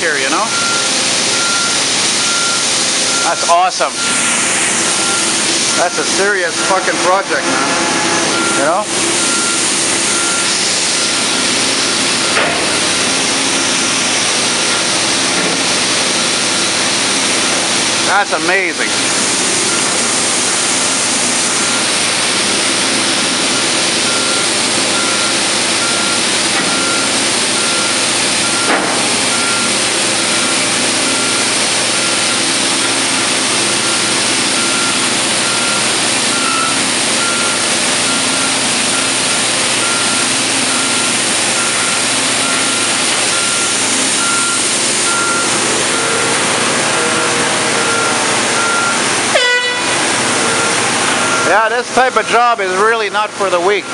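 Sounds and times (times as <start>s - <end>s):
reversing alarm beeping: 0.0s - 15.0s, 18.3s - 53.9s
diesel construction machinery: 0.0s - 53.9s.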